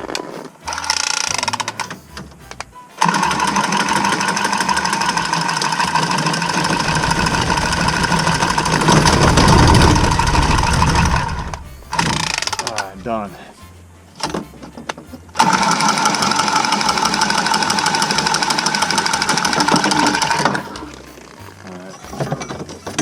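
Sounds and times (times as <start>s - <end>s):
tubing cutter motor whine: 3.0s - 12.6s.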